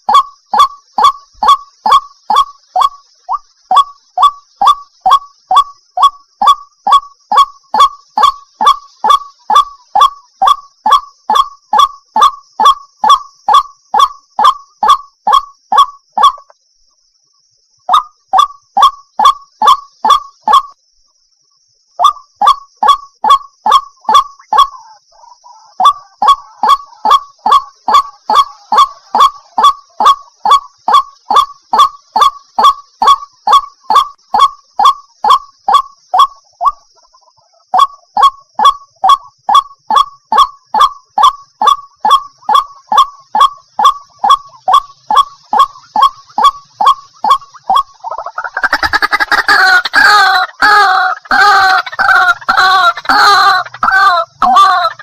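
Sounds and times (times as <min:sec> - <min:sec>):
waterhen harsh calls: 0:00.0 - 0:16.4, 0:22.0 - 0:55.0.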